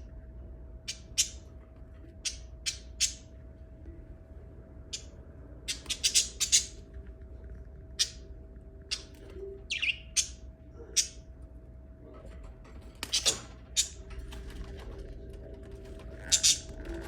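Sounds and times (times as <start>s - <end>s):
faint steady hum: 0.0s - 17.0s
lovebirds chirping shrilly: 5.7s - 6.8s, 9.7s - 10.4s.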